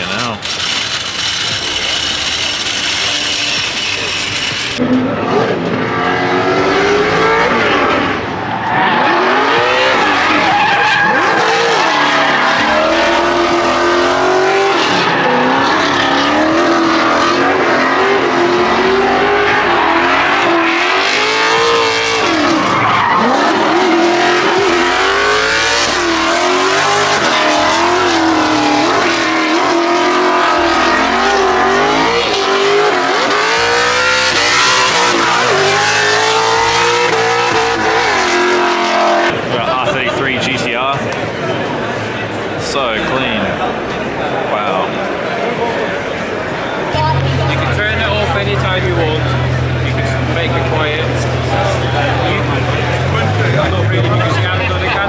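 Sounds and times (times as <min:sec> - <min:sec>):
tire squeal: 0:00.0 - 0:04.8, 0:08.2 - 0:13.9, 0:19.0 - 0:39.2
car engines at full throttle: 0:00.0 - 0:40.4, 0:41.0 - 0:55.0.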